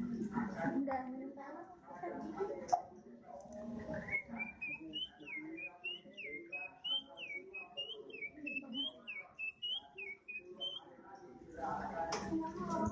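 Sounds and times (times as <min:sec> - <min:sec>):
bird singing whistled notes: 0:03.8 - 0:10.9.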